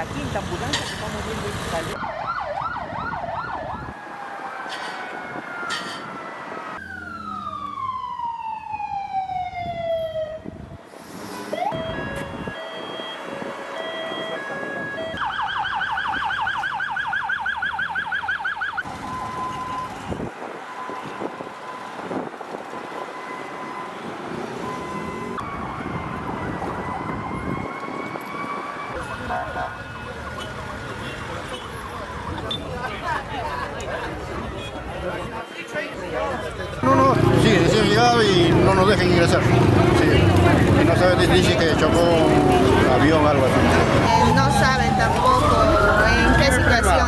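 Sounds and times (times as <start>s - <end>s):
ambulance siren wailing: 1.9s - 10.8s, 11.5s - 30.4s, 36.8s - 47.0s
ambulance siren yelping: 2.0s - 10.7s, 11.5s - 24.0s, 24.6s - 30.3s, 41.2s - 47.0s.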